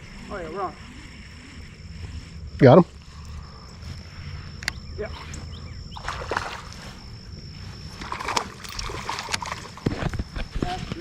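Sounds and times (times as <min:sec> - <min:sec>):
steady high-pitched whine: 0:00.0 - 0:11.0
water splashing and sloshing: 0:05.9 - 0:10.4.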